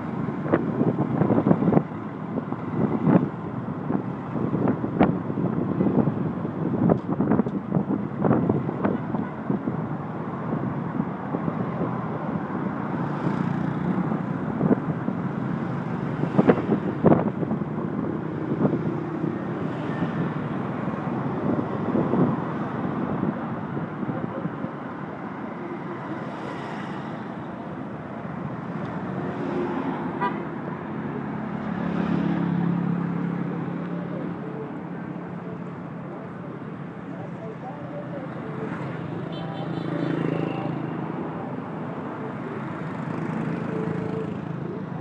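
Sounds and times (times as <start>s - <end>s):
city road traffic: 0.0s - 45.0s.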